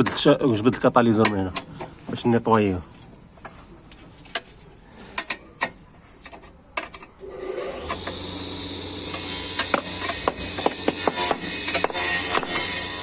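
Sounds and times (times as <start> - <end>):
hand tools clanking on metal: 9.0 - 13.0.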